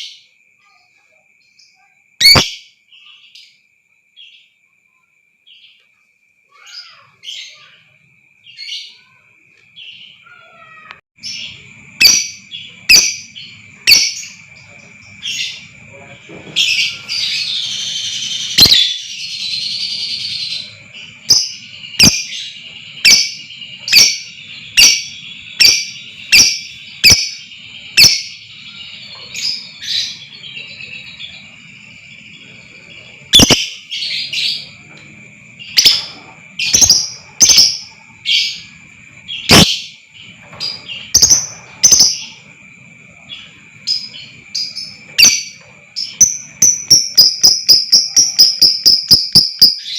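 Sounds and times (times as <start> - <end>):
lovebird chattering and chirping: 2.2 - 2.6, 11.2 - 15.8, 16.6 - 32.0, 33.1 - 34.8, 35.6 - 42.5, 43.8 - 49.9.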